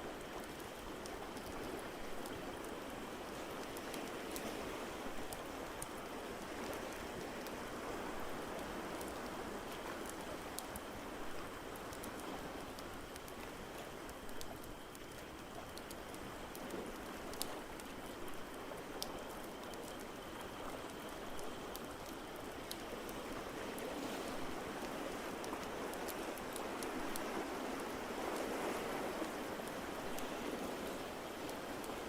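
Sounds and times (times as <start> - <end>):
wood fire crackling: 11.3 - 23.3.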